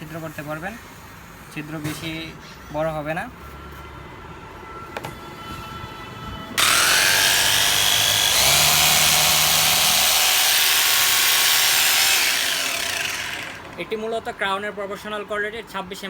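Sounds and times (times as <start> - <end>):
rotary hammer drill motor whine: 6.6 - 13.8.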